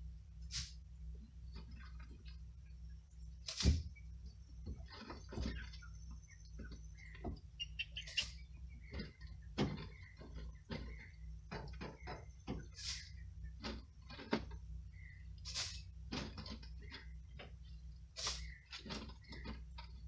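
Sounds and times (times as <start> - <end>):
wood shavings rustling swish: 0.5 - 0.8, 12.7 - 13.2, 15.4 - 15.9, 18.2 - 18.6.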